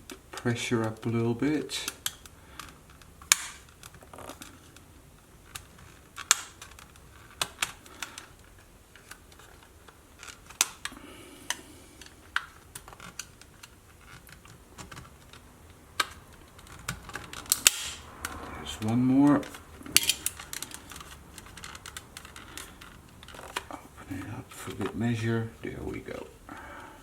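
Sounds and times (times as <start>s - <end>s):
plastic clicks and snaps: 1.8s - 4.9s, 5.5s - 18.5s.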